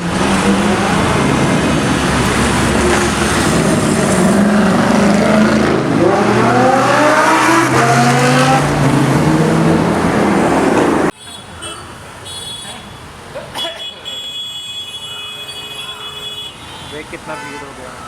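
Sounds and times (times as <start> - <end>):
car engine revving: 0.0 - 11.1.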